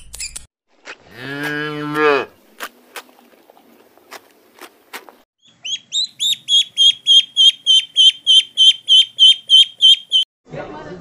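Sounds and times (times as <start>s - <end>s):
cow cropping grass: 0.7s - 5.3s
duckling peeping: 5.4s - 10.2s.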